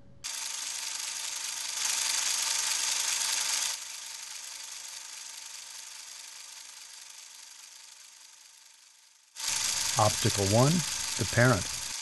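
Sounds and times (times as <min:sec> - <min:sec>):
static hiss: 0:09.4 - 0:12.0.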